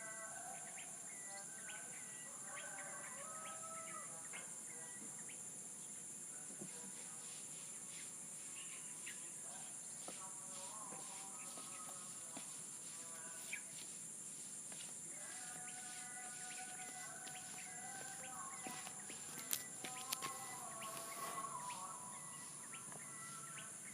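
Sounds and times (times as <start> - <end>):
high insect drone: 0.0 - 23.9
bird chirps and calls: 15.6 - 23.9.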